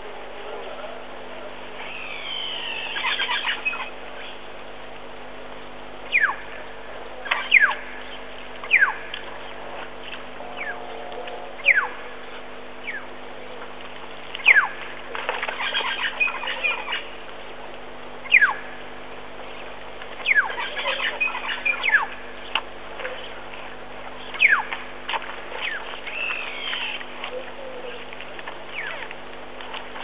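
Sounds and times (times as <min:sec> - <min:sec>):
birds chattering: 0:00.4 - 0:04.6, 0:05.3 - 0:13.8, 0:14.4 - 0:17.3, 0:18.0 - 0:30.0.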